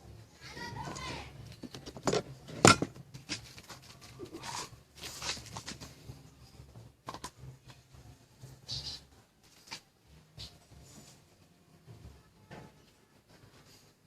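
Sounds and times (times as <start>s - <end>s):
clicks and knocks of objects handled: 1.4s - 5.9s, 7.0s - 7.8s.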